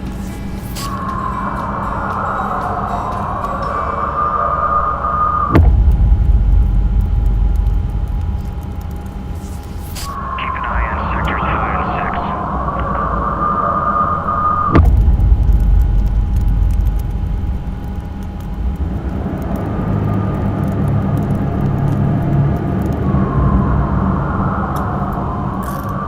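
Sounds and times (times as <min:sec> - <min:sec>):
loud low rumble: 0:10.4 - 0:21.5.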